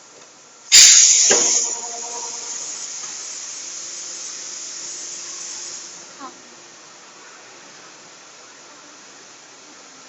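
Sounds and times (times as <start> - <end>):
compressed air hissing: 0.7 - 6.1.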